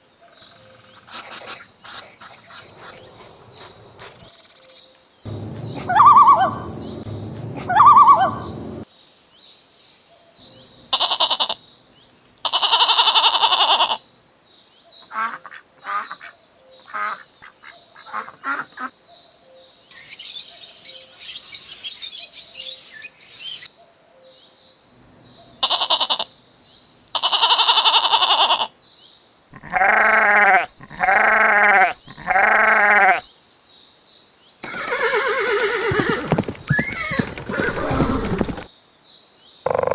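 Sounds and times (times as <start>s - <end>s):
farm animal calls: 0.3s - 4.3s, 5.3s - 8.8s, 10.9s - 11.6s, 12.4s - 14.0s, 25.4s - 26.4s, 27.1s - 28.7s, 29.5s - 33.3s, 34.6s - 38.7s, 39.7s - 39.9s.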